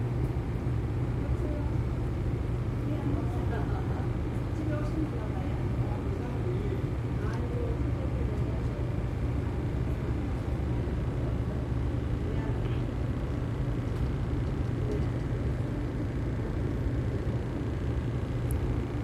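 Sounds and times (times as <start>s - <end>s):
roadside background rumble: 0.0s - 19.0s.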